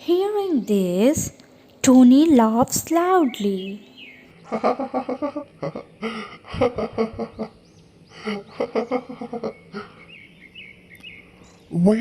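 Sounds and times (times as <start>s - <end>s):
cartoon character laughing: 4.4s - 7.6s, 8.2s - 9.9s.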